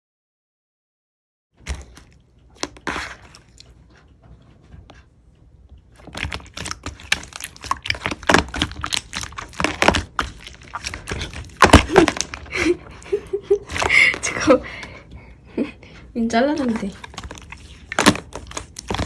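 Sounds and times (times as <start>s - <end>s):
slime squished clicking and popping: 6.0s - 12.5s, 16.6s - 19.0s.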